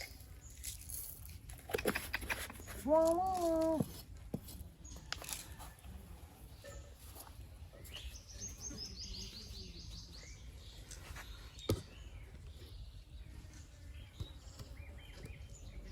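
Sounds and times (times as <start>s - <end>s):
small bird chirping: 6.5s - 15.9s.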